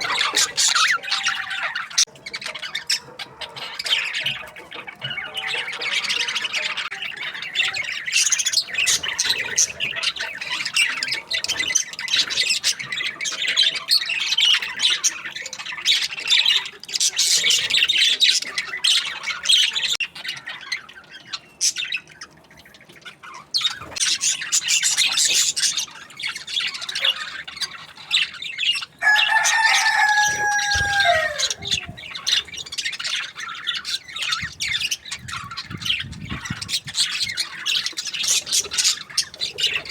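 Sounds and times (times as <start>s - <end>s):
budgerigars chirping and chattering: 0.0s - 39.9s
long bird call: 29.0s - 32.2s.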